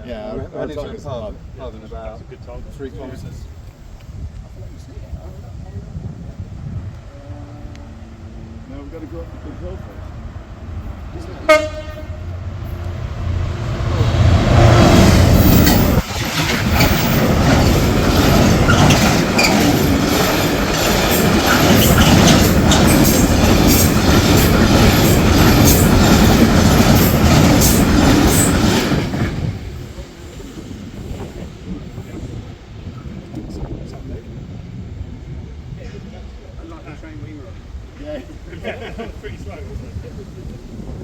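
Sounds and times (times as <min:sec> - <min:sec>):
freight train rumbling: 0:00.0 - 0:41.0
train horn blast: 0:07.0 - 0:08.6, 0:11.4 - 0:12.9
wheels clattering over rail joints: 0:13.7 - 0:29.6.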